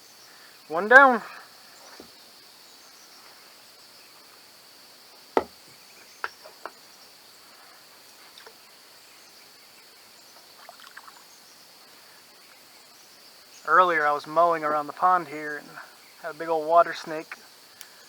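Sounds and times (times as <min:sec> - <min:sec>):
high-pitched insect chorus: 0:00.0 - 0:18.0
sharp knocks: 0:05.4 - 0:05.7.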